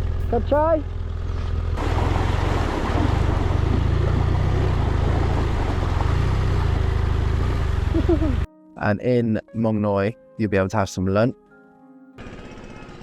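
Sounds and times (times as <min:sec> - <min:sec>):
motorcycle engine running: 0:00.0 - 0:08.5, 0:12.2 - 0:13.0.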